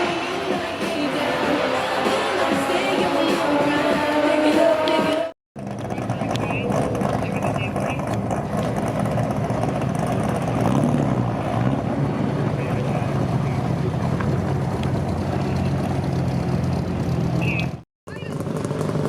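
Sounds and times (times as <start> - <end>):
car engine running: 0.2 - 19.0.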